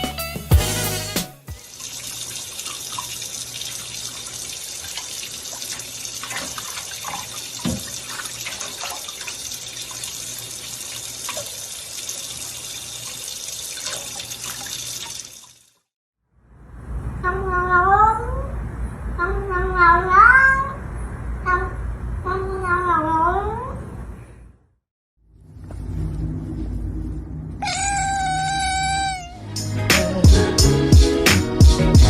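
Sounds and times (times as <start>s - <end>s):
water running: 0.8s - 15.8s
faint drips and splashes: 1.6s - 15.9s.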